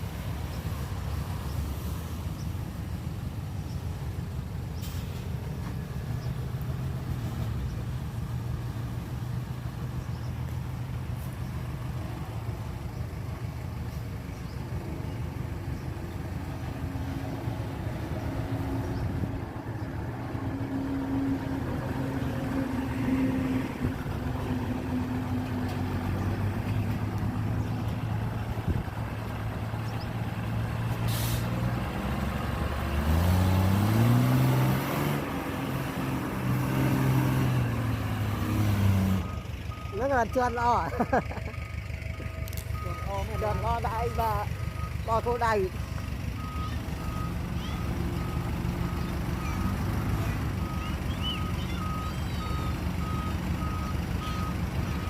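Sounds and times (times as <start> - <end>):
heavy diesel engine revving: 14.9 - 55.0
short hiss: 31.0 - 31.6.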